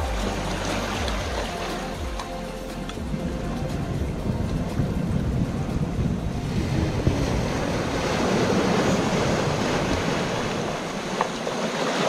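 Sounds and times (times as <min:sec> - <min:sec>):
rushing water: 0:00.0 - 0:12.0
wind buffeting microphone: 0:03.0 - 0:11.8.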